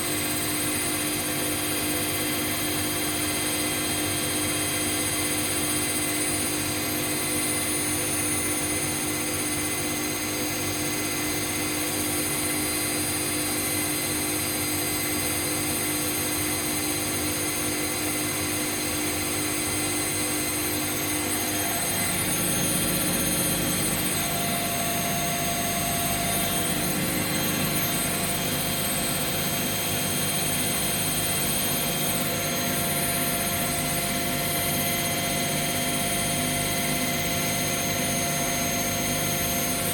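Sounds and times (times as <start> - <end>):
washing machines spinning: 0.0 - 39.9.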